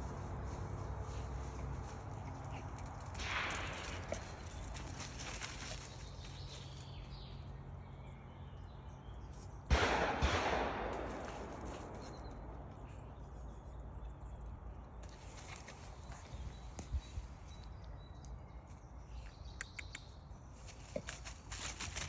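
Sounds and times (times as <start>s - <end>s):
sharp bangs with echo: 3.2s - 4.7s, 9.7s - 12.7s.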